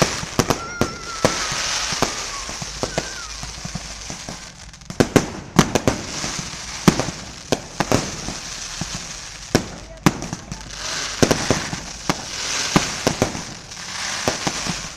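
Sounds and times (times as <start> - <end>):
whistling firework shell: 0.0 - 3.7
firework bangs: 0.0 - 14.9
firework crackling hiss: 0.0 - 14.9.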